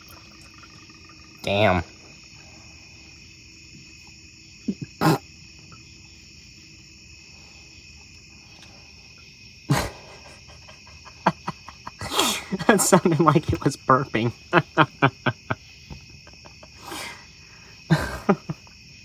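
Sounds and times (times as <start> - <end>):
oil draining and burping: 0.0 - 5.8, 9.7 - 18.7
crickets chirping: 0.0 - 19.0.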